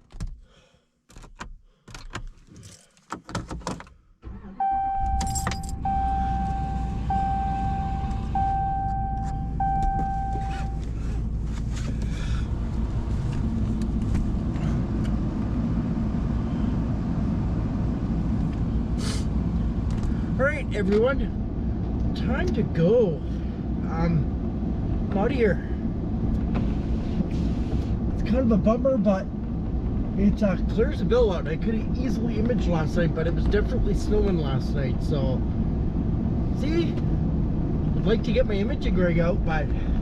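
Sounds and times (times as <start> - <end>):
keys jangling: 2.0 - 3.1, 5.2 - 5.8
truck engine starting and idling: 4.2 - 34.7
dashboard warning chime: 4.4 - 10.8.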